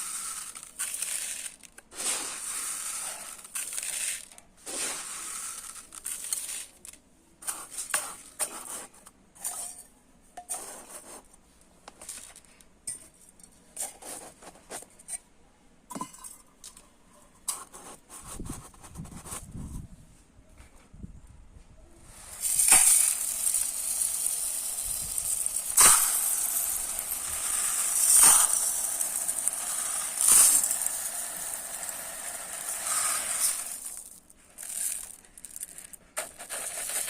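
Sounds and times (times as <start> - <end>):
rice grains pouring and trickling: 0.0 - 6.8, 22.1 - 37.0.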